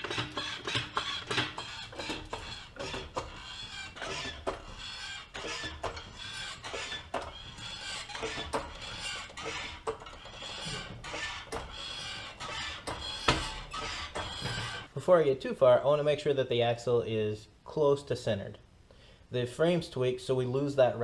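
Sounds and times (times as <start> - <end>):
metal tools clinking and scraping: 0.0 - 14.9.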